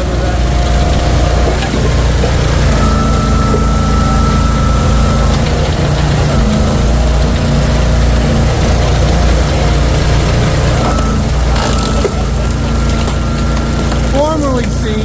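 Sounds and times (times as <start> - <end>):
faint steady whine: 0.0 - 15.0
wood splitter engine running: 0.0 - 15.0.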